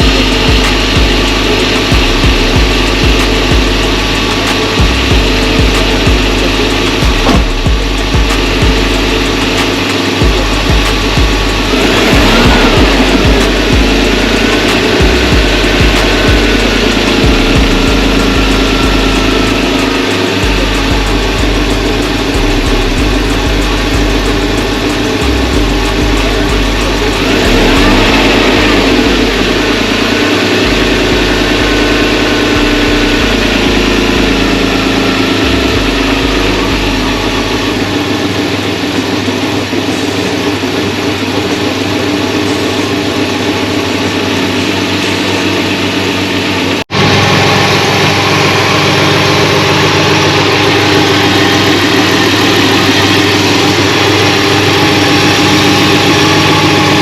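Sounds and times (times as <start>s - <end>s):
deep low throb: 0.0s - 38.2s
car engine idling: 0.0s - 57.0s.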